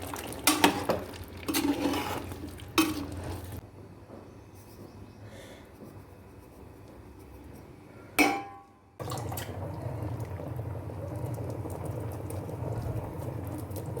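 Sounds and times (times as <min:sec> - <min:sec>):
curry bubbling in a pot: 0:00.0 - 0:03.6, 0:09.0 - 0:14.0.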